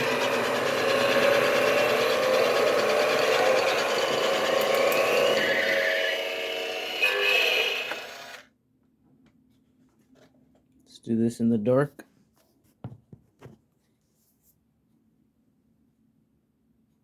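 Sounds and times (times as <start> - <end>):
toy motor and wheels rattling: 0.0 - 5.4, 6.5 - 8.4
toy electronic sound effects: 6.8 - 8.4.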